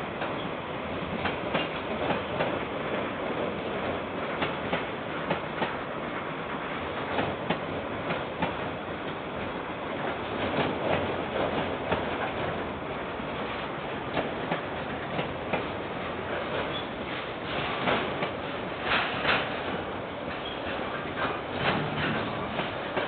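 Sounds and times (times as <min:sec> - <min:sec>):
freight train wagons rumbling: 0:00.0 - 0:23.0
wheels clacking over rail joints: 0:01.1 - 0:02.6, 0:13.4 - 0:23.0.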